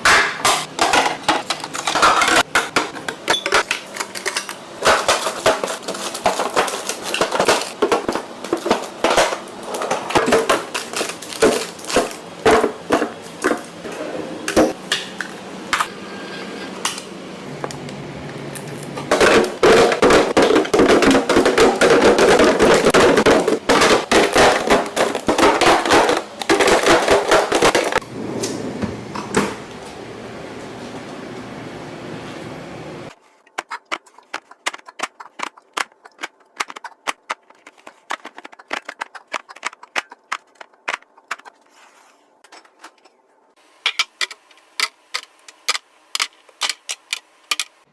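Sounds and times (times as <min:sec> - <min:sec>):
kitchenware clinking and knocking: 0:00.0 - 0:13.6
kitchenware rattling: 0:00.4 - 0:13.6.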